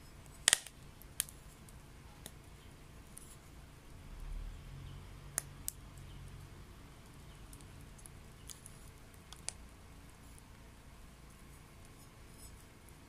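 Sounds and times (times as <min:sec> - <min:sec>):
firewood crackling pops: 0:00.4 - 0:02.4.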